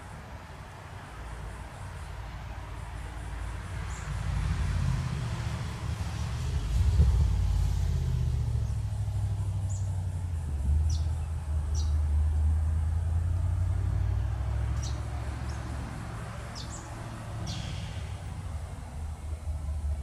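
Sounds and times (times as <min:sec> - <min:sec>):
diesel locomotive engine rumbling: 0:00.0 - 0:20.0
small birds chirping: 0:03.4 - 0:04.2, 0:08.5 - 0:12.1, 0:14.2 - 0:18.4.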